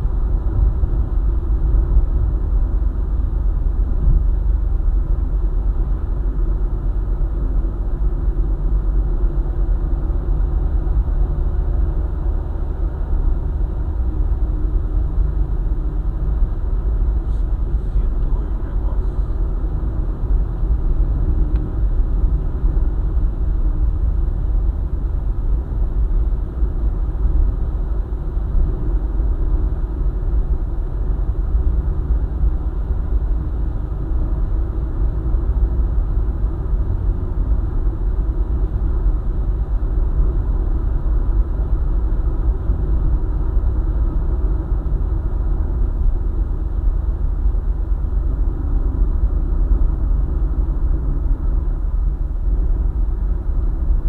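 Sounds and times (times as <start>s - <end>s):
car driving on highway: 0.0s - 54.0s.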